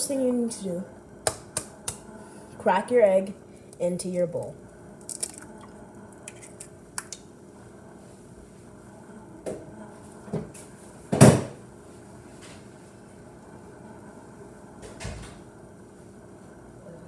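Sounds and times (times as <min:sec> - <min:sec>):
egg cracking against a bowl: 0:05.0 - 0:07.3.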